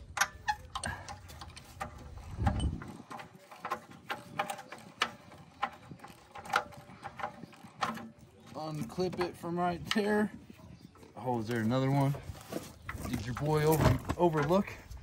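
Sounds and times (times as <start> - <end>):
metallic clicks and clanks of tools: 0.0 - 10.2.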